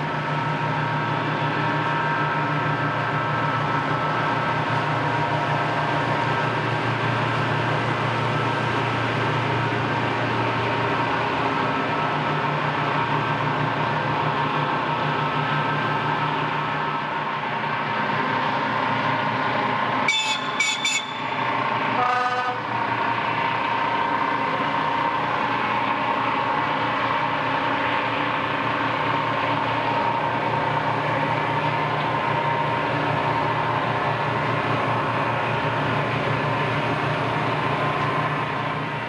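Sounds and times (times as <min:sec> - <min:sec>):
diesel engine drone: 0:00.0 - 0:39.0
horn blast: 0:20.1 - 0:22.7.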